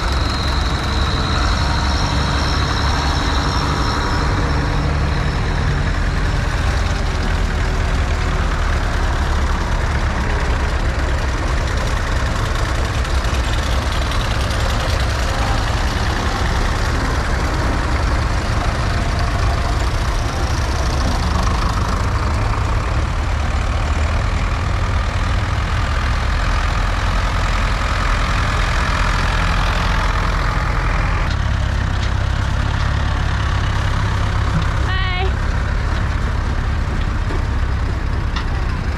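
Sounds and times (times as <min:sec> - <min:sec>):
tractor engine drone: 0:00.0 - 0:38.9.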